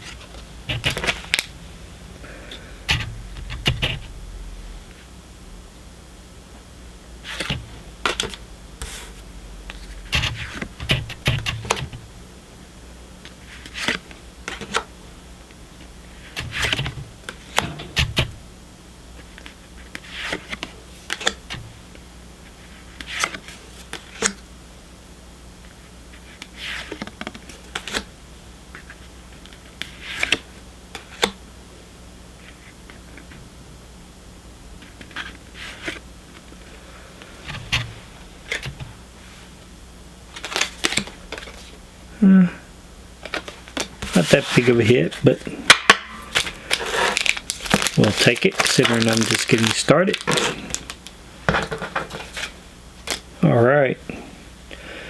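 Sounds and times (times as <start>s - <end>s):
trading cards clicking and rustling: 0.7s - 1.5s, 19.4s - 21.5s, 40.3s - 41.7s, 43.2s - 53.3s.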